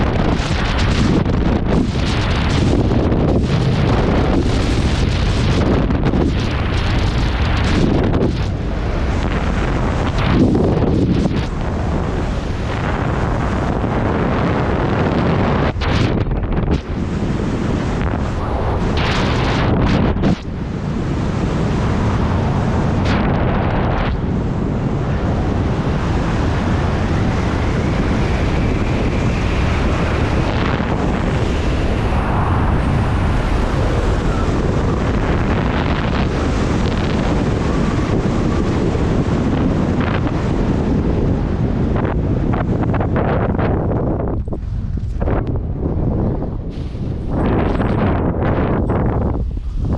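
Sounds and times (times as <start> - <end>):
wind rushing over microphone: 0.0 - 49.9.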